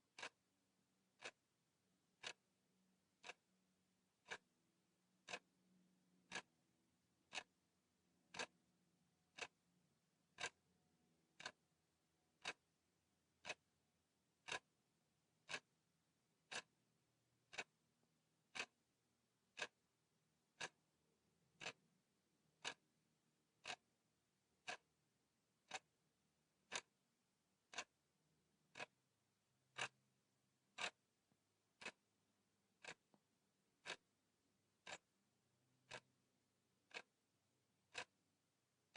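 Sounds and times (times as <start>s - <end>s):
clock ticking: 0.1s - 0.4s, 1.2s - 1.5s, 2.1s - 2.6s, 3.2s - 3.5s, 4.2s - 4.6s, 5.2s - 6.6s, 7.2s - 7.7s, 8.3s - 8.6s, 9.3s - 9.6s, 10.3s - 10.7s, 11.3s - 11.7s, 12.3s - 14.8s, 15.4s - 15.8s, 16.4s - 16.8s, 17.4s - 17.8s, 18.4s - 19.9s, 20.5s - 21.9s, 22.6s - 22.9s, 23.6s - 26.0s, 26.6s - 27.0s, 27.6s - 29.0s, 29.6s - 30.0s, 30.6s - 31.0s, 31.7s - 32.1s, 32.7s - 35.2s, 35.8s - 38.2s.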